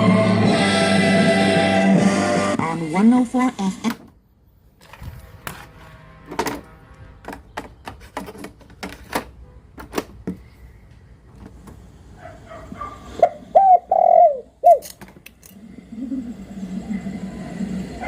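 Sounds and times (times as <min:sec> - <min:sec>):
dove cooing: 0:13.1 - 0:15.0, 0:15.6 - 0:18.0.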